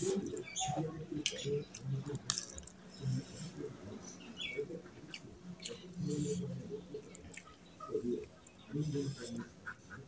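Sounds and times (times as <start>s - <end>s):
chewing and lip-smacking: 1.1s - 3.2s, 4.8s - 8.6s.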